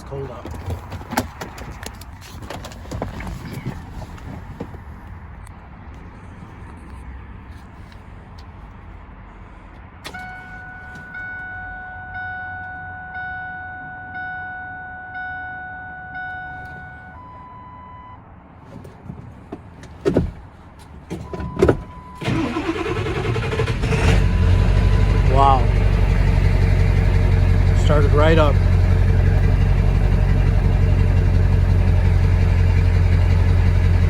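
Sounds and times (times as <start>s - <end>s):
diesel engine cranking and starting: 9.4s - 11.6s, 18.8s - 34.0s
ignition click: 10.0s - 14.6s, 21.2s - 24.2s
repeating warning chime: 10.2s - 18.2s.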